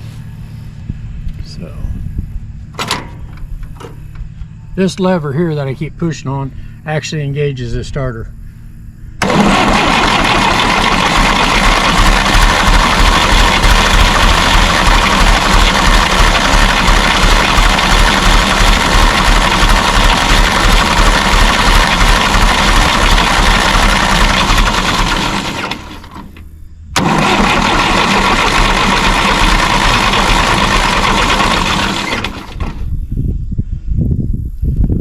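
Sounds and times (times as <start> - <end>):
tractor engine cranking: 2.7 - 4.2, 9.2 - 32.9.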